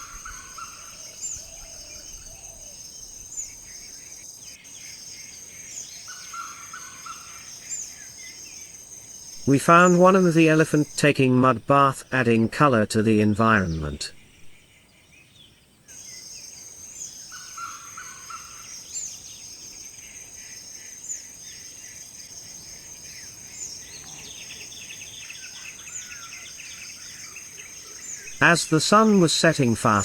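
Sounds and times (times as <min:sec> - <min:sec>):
crickets trilling: 0:00.0 - 0:11.6, 0:15.9 - 0:30.0
birds chirping: 0:00.0 - 0:30.0.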